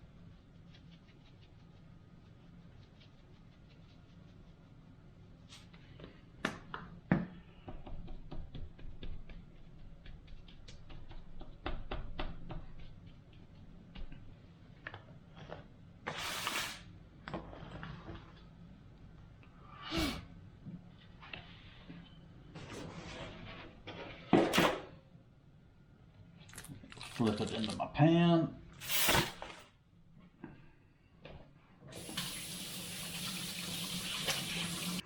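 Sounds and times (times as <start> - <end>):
seasoning shaker ticks and taps: 7.7 - 14.2.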